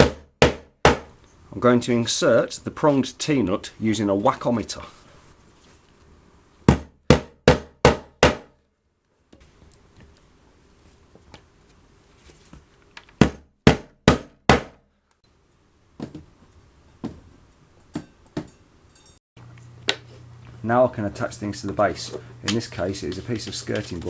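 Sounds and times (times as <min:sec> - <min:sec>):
hammer strikes on metal nuts: 0:00.0 - 0:01.1, 0:06.7 - 0:08.5.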